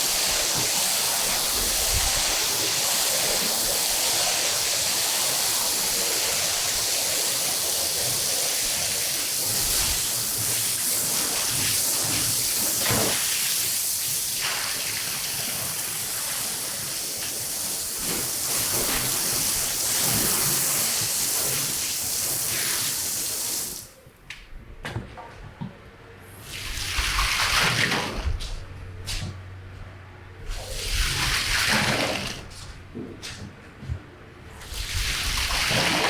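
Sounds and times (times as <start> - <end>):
water spraying onto carpet: 0.0 - 24.0, 26.4 - 28.6, 30.4 - 32.7, 34.5 - 36.0.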